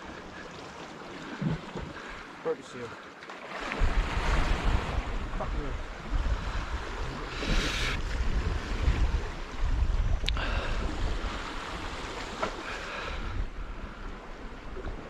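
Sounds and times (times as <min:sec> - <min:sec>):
waves washing against rocks: 0:01.1 - 0:09.9
wind buffeting microphone: 0:03.8 - 0:15.0.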